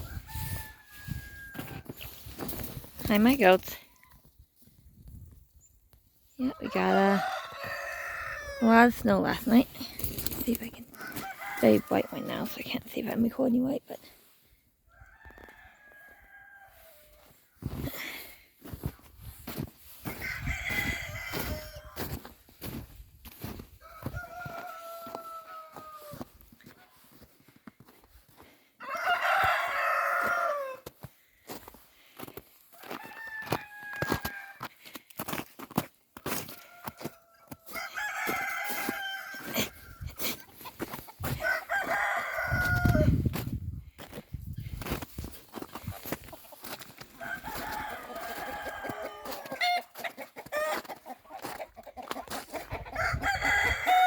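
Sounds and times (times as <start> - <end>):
rooster crowing: 0.0 - 1.9, 6.6 - 8.7, 11.0 - 12.4, 14.9 - 17.2, 20.1 - 22.2, 23.8 - 26.3, 28.8 - 30.9, 32.8 - 34.7, 36.2 - 40.0, 41.2 - 43.2, 47.2 - 50.9, 52.9 - 54.0.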